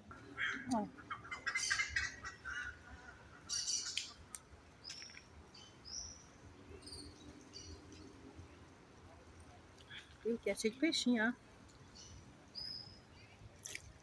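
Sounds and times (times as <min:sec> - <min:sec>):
birds chirping and calling: 0:00.1 - 0:08.1.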